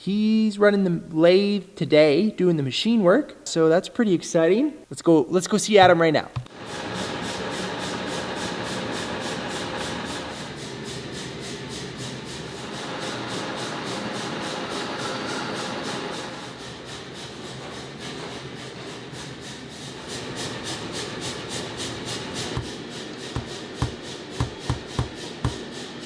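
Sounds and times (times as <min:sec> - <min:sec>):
metal lathe cutting steel: 0:06.6 - 0:10.8, 0:12.2 - 0:16.8, 0:20.0 - 0:25.8
sharp knocks: 0:22.4 - 0:25.7.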